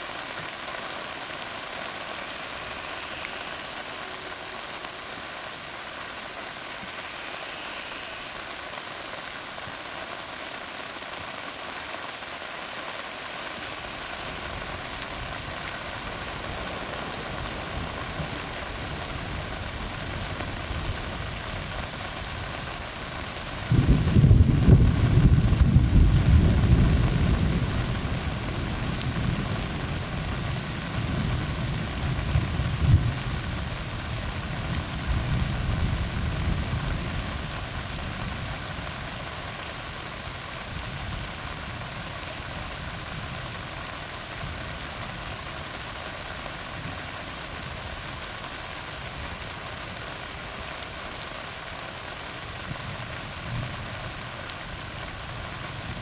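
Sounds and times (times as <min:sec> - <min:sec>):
rain falling on road: 0:00.0 - 0:56.0
low rumble of thunder: 0:14.3 - 0:22.4, 0:23.5 - 0:39.2.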